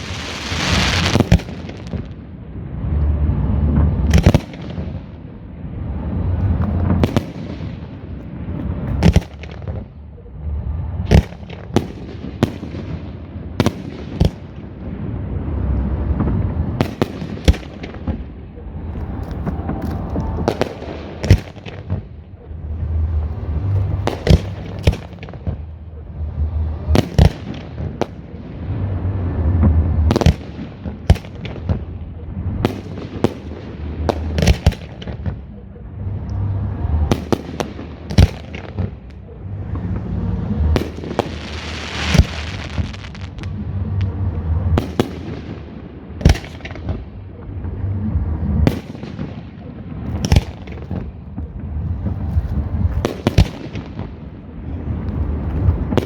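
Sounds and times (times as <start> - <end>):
firework hiss: 0.0 - 1.9, 39.8 - 45.3
fireworks bangs: 0.0 - 56.0
low rumble: 14.6 - 56.0.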